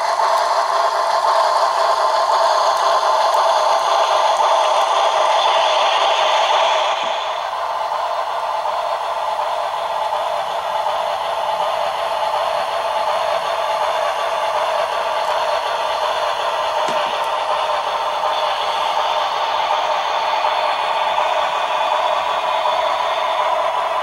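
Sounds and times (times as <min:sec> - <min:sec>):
model train mechanical clatter: 0:00.0 - 0:24.0
steam engine sounds from speaker: 0:00.0 - 0:24.0.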